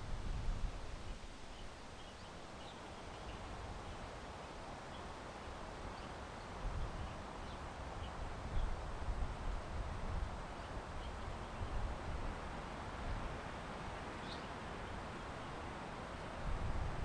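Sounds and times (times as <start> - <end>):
wind rumbling on microphone: 0.0 - 1.7, 6.6 - 17.0
small birds chirping: 1.5 - 4.1, 14.1 - 15.6.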